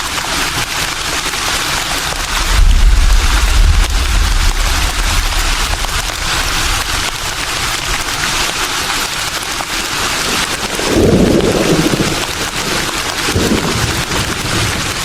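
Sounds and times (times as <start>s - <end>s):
leaves rustling in breeze: 0.1s - 15.0s
wind gust: 1.9s - 9.1s.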